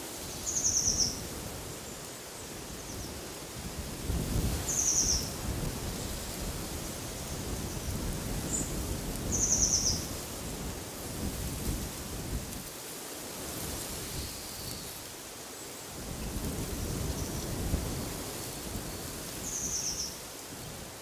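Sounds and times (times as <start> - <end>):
wind rumbling and gusting: 2.5 - 12.7, 15.9 - 21.0.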